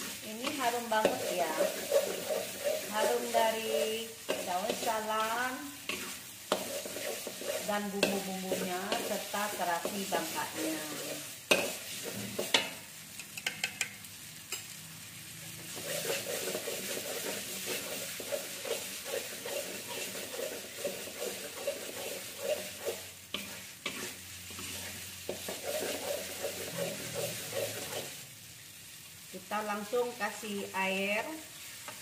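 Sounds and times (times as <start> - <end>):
spatula scraping a wok: 0.0 - 12.8, 15.5 - 28.3, 30.3 - 32.0
paste sizzling in hot oil: 0.0 - 32.0
spatula clinking on a wok: 12.4 - 14.8.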